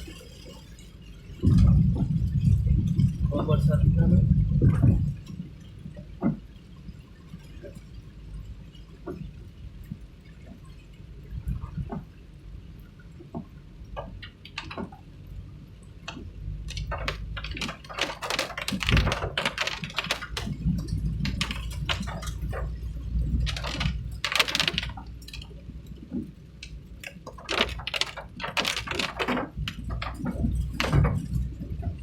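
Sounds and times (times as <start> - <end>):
raindrops tapping: 0.0 - 32.0
moving vehicle rumble: 1.4 - 6.8, 10.8 - 32.0.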